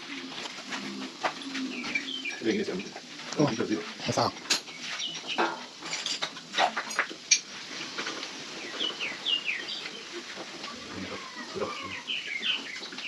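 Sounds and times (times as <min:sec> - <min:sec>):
bird chirping: 0:01.4 - 0:03.7, 0:08.6 - 0:10.1, 0:10.8 - 0:13.0.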